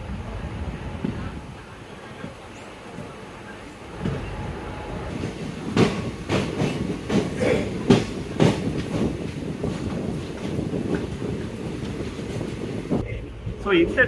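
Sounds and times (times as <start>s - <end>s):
train rumbling on rails: 0.0s - 14.0s
train wheels clacking: 5.0s - 13.0s.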